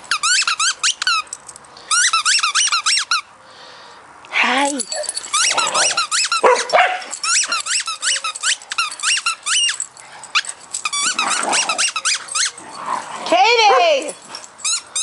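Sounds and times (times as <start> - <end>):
dog squealing and whining: 4.9 - 12.7, 13.6 - 15.0
dog growling: 5.5 - 6.0, 11.1 - 12.0.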